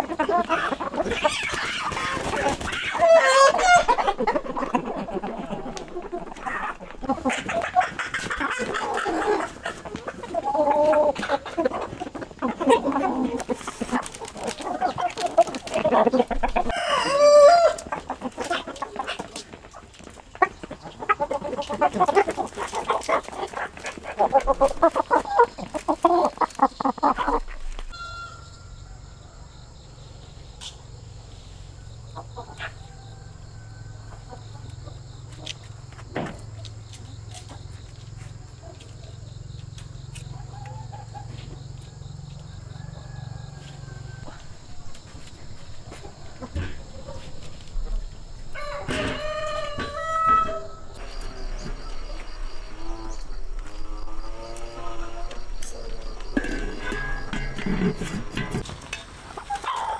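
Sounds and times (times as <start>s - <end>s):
chickens clucking: 0.0s - 59.9s
high insect trill: 24.6s - 59.9s.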